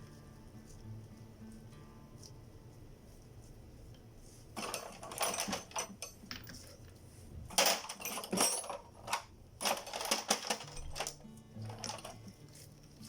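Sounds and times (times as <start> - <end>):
metal tools clinking: 4.6 - 6.9, 7.5 - 12.4.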